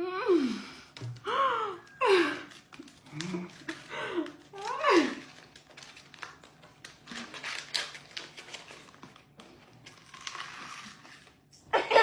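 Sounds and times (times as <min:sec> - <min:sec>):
crunchy food being chewed: 0:05.5 - 0:11.3.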